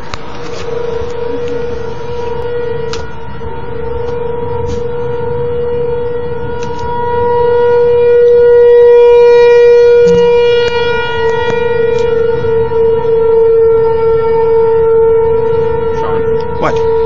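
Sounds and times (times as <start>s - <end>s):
warning siren steady pitch: 0.0s - 17.0s.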